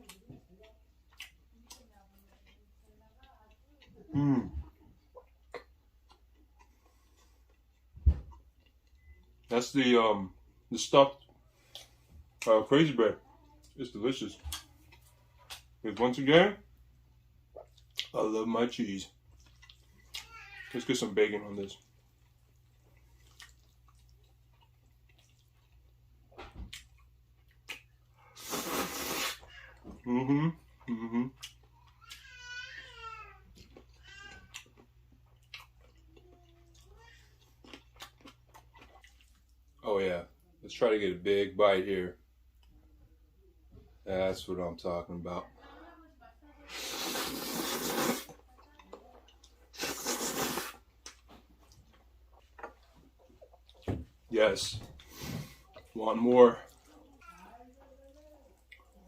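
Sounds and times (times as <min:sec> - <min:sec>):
person chewing food: 0:00.0 - 0:09.5, 0:11.1 - 0:12.5, 0:14.4 - 0:15.8, 0:17.1 - 0:18.2, 0:19.1 - 0:20.4, 0:21.7 - 0:32.2, 0:33.4 - 0:39.8, 0:46.7 - 0:54.3, 0:54.9 - 0:59.0
mouth clicks and smacks eating: 0:01.0 - 0:02.6, 0:04.6 - 0:09.0, 0:17.6 - 0:18.2, 0:26.6 - 0:29.4, 0:37.6 - 0:39.6, 0:46.8 - 0:53.9, 0:58.6 - 0:59.0.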